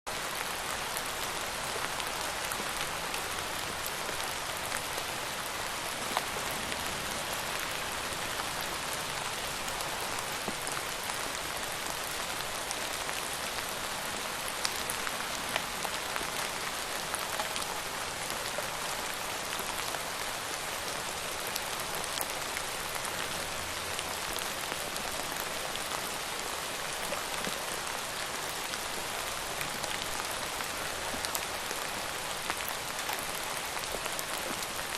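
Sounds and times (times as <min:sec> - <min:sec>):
steady rain hiss: 0:00.1 - 0:34.9.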